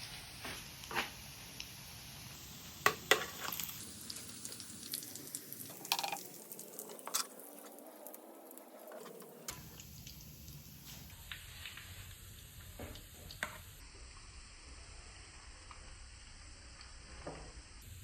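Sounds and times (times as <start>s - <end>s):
utensils clinking on cookware: 5.8s - 7.4s.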